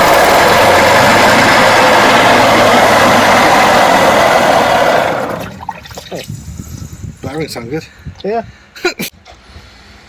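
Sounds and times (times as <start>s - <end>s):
outboard motor running: 0.0s - 6.3s.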